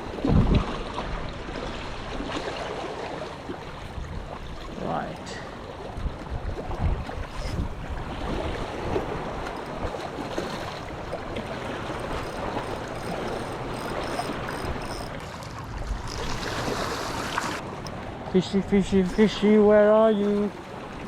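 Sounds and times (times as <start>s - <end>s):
sea water washing among rocks: 15.1s - 17.8s.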